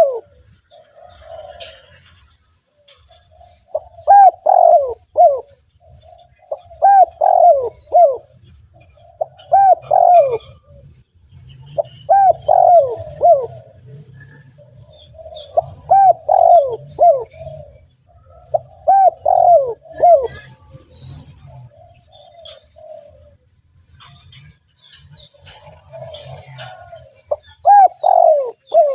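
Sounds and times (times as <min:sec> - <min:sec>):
dove cooing: 0:00.0 - 0:28.9.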